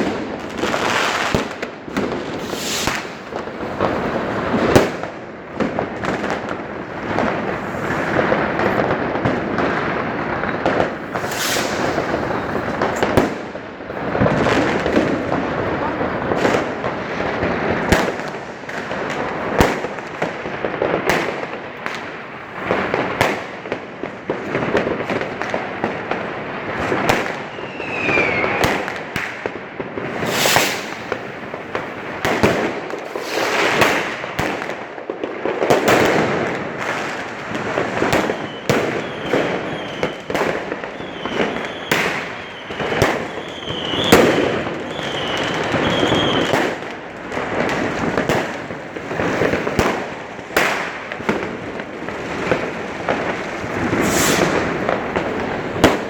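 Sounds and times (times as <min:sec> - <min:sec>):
fireworks bangs and crackles: 0:00.0 - 0:56.0
falling firework whistle: 0:02.3 - 0:03.3, 0:09.6 - 0:13.5, 0:27.1 - 0:29.4, 0:30.1 - 0:31.4, 0:33.0 - 0:34.2, 0:38.0 - 0:46.8, 0:52.3 - 0:56.0
short firework whistles: 0:02.4 - 0:03.3, 0:10.4 - 0:13.2, 0:27.4 - 0:28.9, 0:30.1 - 0:31.3, 0:33.0 - 0:34.1, 0:38.2 - 0:40.3, 0:40.9 - 0:46.5, 0:53.6 - 0:56.0.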